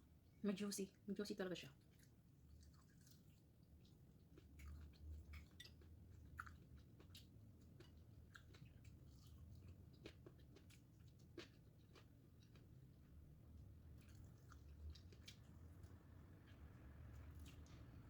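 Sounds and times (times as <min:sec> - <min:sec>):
person chewing food: 0:01.9 - 0:18.0.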